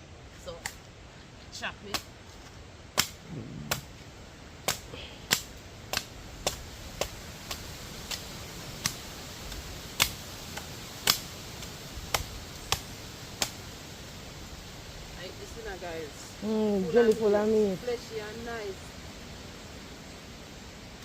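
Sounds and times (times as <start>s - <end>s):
blade chopping coconut husk: 2.9s - 3.9s, 4.6s - 13.6s.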